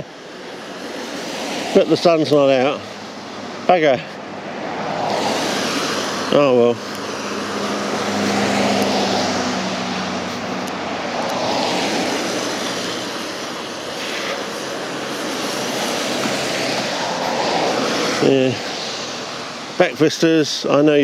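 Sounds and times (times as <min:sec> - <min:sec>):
vehicle engine and road noise: 0:00.0 - 0:21.0.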